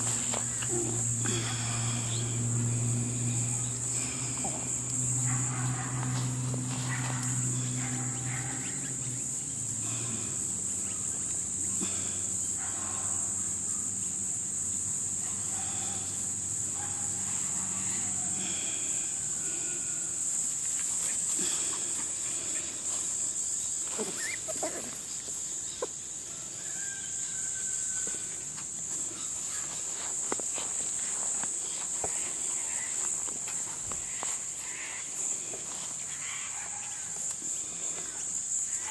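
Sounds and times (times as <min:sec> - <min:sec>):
high-pitched insect drone: 0:00.0 - 0:38.9
short animal calls: 0:23.9 - 0:25.0.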